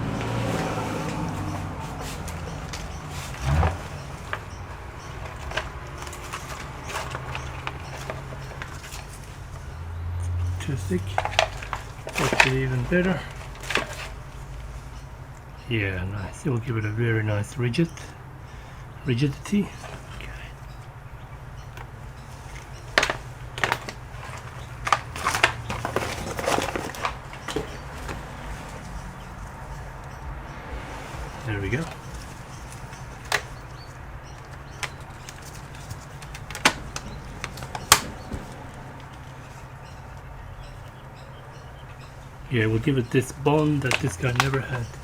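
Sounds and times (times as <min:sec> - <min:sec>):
laptop clicks and crinkles: 0:00.2 - 0:09.7, 0:11.0 - 0:14.7, 0:21.6 - 0:29.3, 0:31.8 - 0:41.0, 0:43.0 - 0:45.0
clicks of laptop parts handled: 0:34.4 - 0:39.2, 0:43.8 - 0:45.0.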